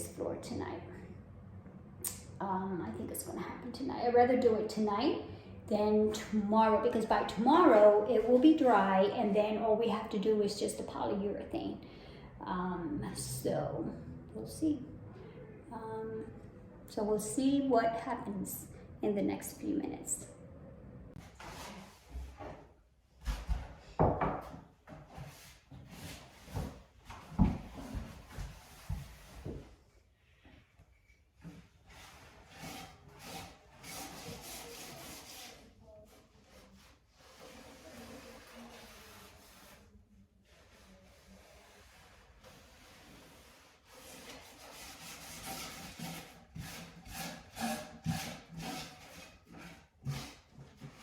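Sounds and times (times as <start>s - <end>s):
objects knocking and thumping: 23.2s - 25.3s
rubbing on wooden floor: 24.9s - 29.8s, 31.4s - 51.0s.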